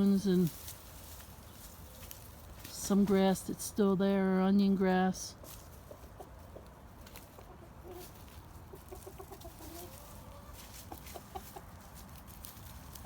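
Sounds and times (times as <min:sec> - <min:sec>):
hens clucking softly: 0:05.7 - 0:13.0.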